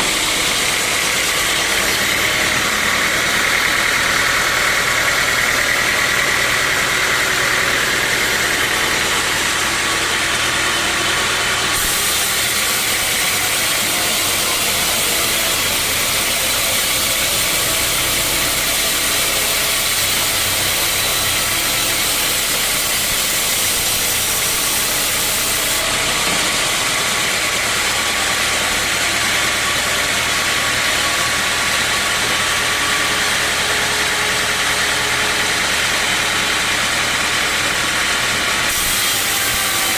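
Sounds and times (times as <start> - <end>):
saw blade cutting log: 0.0 - 39.9
sawmill machinery running: 0.0 - 39.9.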